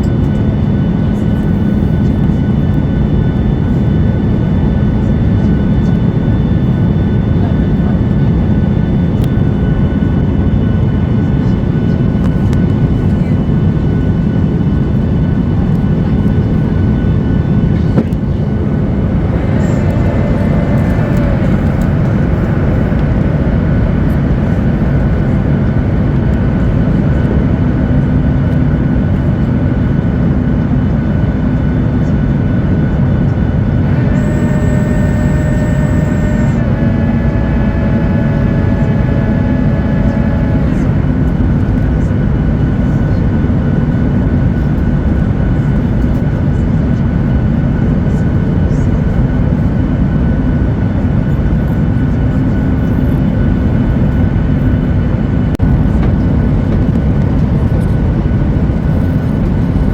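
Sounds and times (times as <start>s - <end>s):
higher whine: 0.0s - 59.9s
jet engine cabin rumble: 0.0s - 59.9s
thin whining tones: 16.8s - 25.6s, 33.8s - 41.4s.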